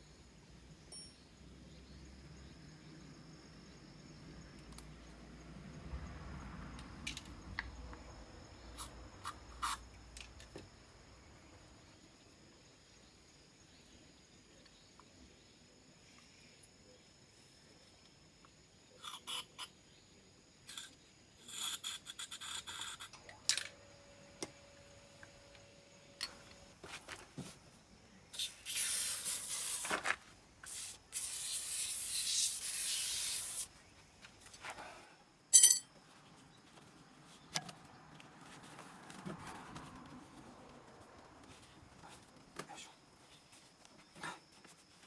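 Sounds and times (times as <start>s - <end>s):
metallic clink: 0.9s - 1.2s, 35.5s - 35.9s.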